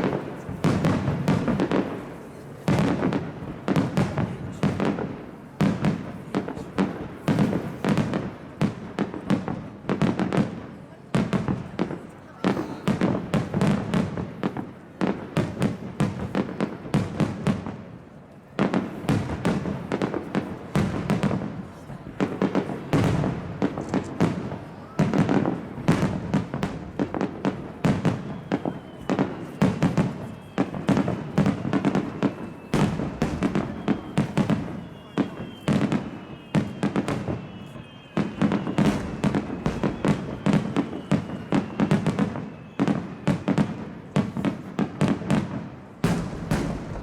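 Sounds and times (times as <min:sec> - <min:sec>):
fireworks booms and crackles: 0:00.0 - 0:47.0.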